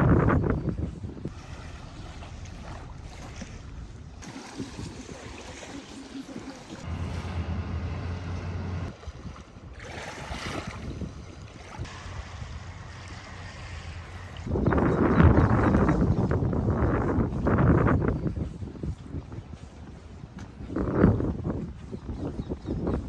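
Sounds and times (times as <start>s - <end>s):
wind rushing on microphone: 0.0s - 5.2s, 6.9s - 23.0s
low steady hum: 1.3s - 4.4s, 6.8s - 9.5s
water washing at river edge: 1.3s - 14.6s.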